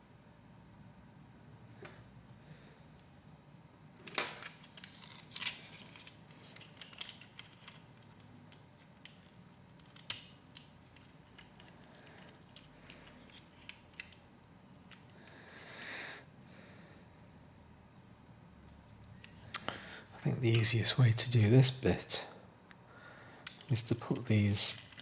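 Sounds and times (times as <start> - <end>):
plastic pieces clicking together: 4.1 - 14.2, 23.4 - 25.0.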